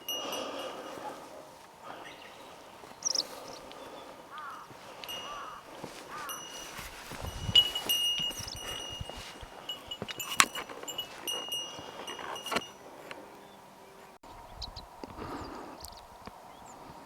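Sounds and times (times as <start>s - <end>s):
small bell ringing faintly: 0.0s - 3.6s, 4.3s - 13.0s
bird chirping: 0.0s - 17.0s.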